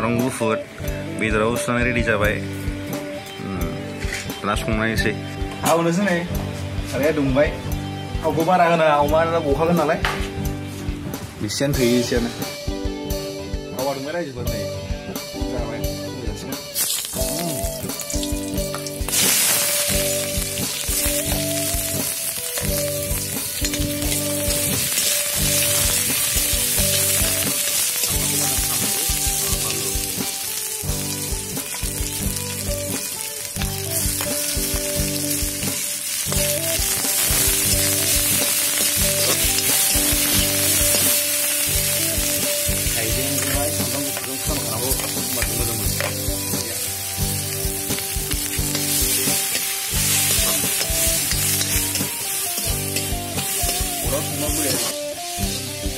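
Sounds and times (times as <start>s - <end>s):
soft background music: 0.0s - 55.9s
onions sizzling in hot oil: 16.7s - 55.9s.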